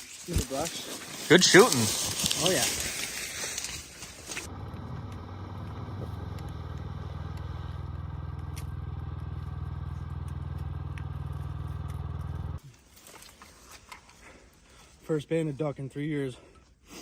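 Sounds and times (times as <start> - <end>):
small boat motor running: 4.5 - 12.6.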